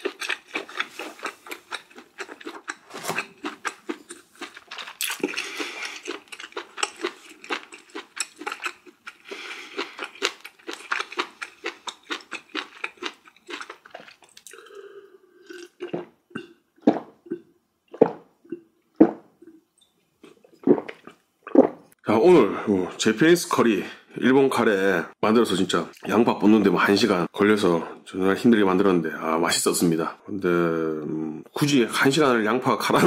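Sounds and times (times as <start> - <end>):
person chewing wet crunching: 0.0 - 18.6.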